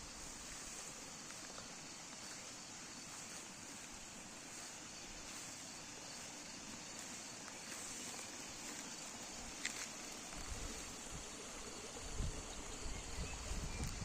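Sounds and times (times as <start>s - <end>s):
faint high-pitched hiss: 0.0s - 14.0s
small ticks: 7.0s - 10.8s, 13.7s - 14.0s.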